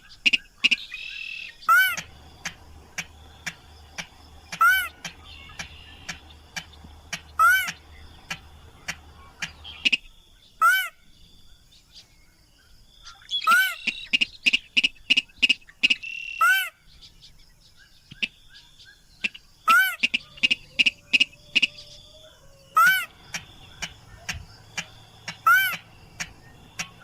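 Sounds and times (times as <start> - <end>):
crake calling: 0.0 - 11.0, 19.2 - 27.0.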